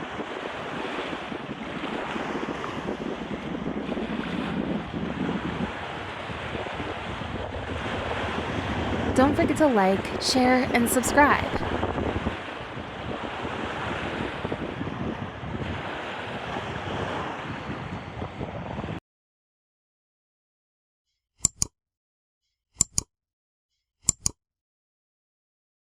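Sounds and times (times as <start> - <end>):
wind buffeting microphone: 0.0 - 10.2, 11.5 - 19.0
sea surf washing on beach: 0.0 - 18.6.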